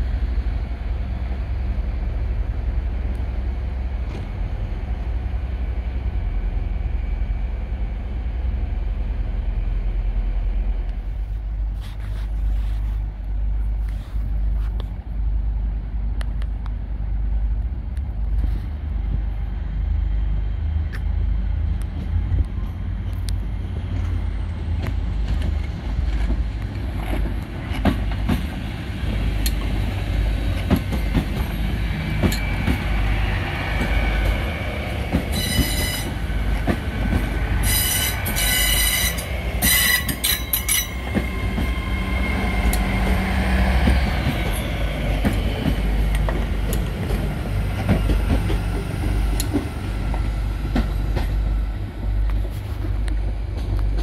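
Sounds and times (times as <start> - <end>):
train engine rumble: 0.0 - 54.0
wheels squealing on rails: 29.8 - 51.3
train horn blasts: 35.2 - 36.1, 37.6 - 41.0.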